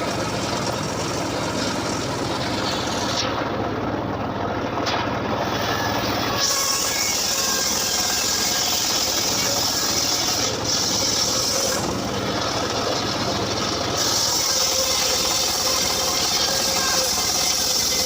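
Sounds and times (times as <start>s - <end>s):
engine-driven saw running: 0.0s - 18.0s
saw hissing through log: 2.4s - 3.4s, 5.4s - 12.8s, 13.9s - 18.0s.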